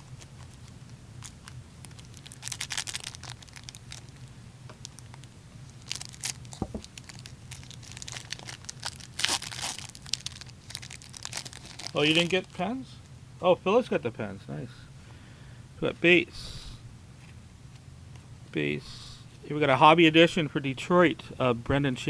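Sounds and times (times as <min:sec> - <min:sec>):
card packs being torn open: 0:00.0 - 0:04.3, 0:04.9 - 0:12.6
wrappers crinkling: 0:00.0 - 0:12.7.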